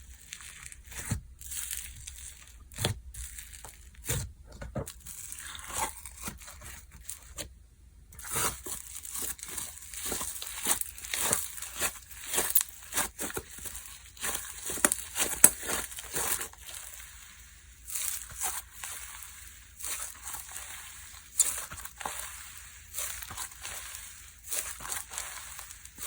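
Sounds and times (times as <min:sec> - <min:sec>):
slime squished by hand: 0:08.2 - 0:26.0.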